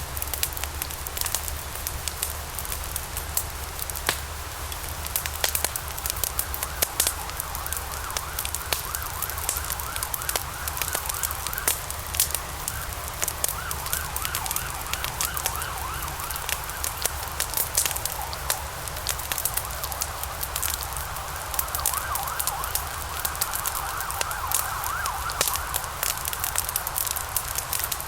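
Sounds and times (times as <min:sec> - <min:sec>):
low fire rumble: 0:00.0 - 0:28.0
wood fire crackling: 0:00.0 - 0:28.0
faint wavering whistle: 0:06.4 - 0:17.4, 0:21.4 - 0:26.0.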